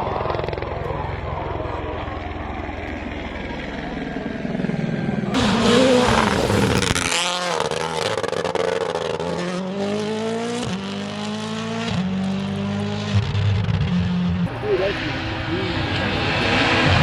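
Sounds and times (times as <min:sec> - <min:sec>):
rally car engines revving: 0:05.3 - 0:07.4, 0:14.5 - 0:17.0.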